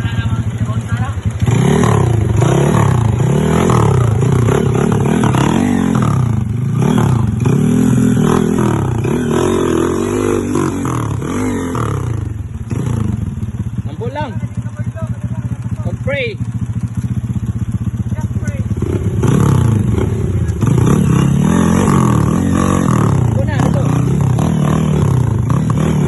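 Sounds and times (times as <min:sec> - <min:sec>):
engine revving up and down: 0:01.4 - 0:13.2, 0:18.8 - 0:26.0.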